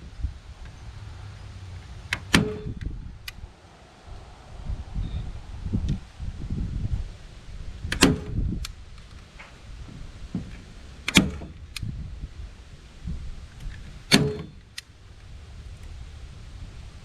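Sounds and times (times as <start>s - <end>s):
staple gun snapping: 11.1s - 11.9s.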